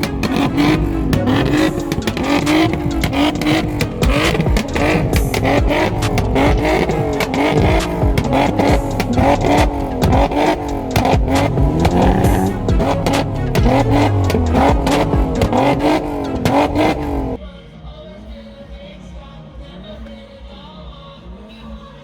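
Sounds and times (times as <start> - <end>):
car engines revving: 0.0 - 17.4
exhaust crackles: 0.0 - 17.4.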